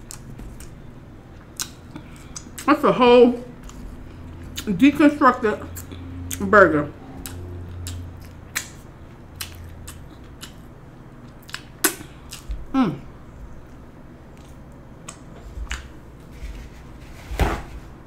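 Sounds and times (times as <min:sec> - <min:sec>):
person chewing: 0:00.0 - 0:02.7, 0:03.5 - 0:04.7, 0:05.7 - 0:06.4, 0:07.0 - 0:12.7, 0:13.3 - 0:16.0
person humming mm: 0:12.6 - 0:13.1.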